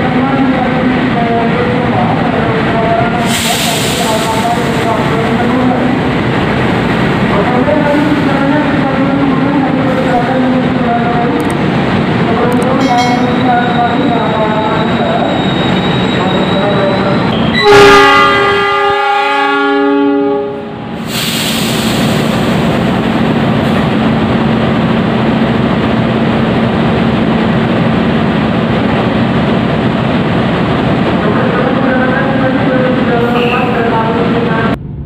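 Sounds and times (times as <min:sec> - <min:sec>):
freight train rumbling past: 0:00.0 - 0:35.0
locomotive horn blowing: 0:17.4 - 0:20.7.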